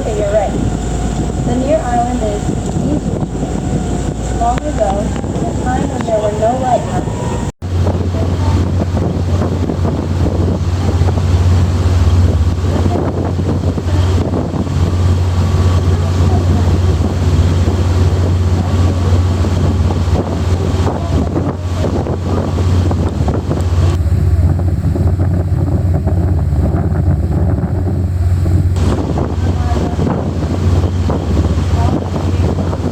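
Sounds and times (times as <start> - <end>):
boat engine drone: 0.0 - 32.9
rushing water: 0.0 - 32.9
wind buffeting microphone: 0.0 - 32.9.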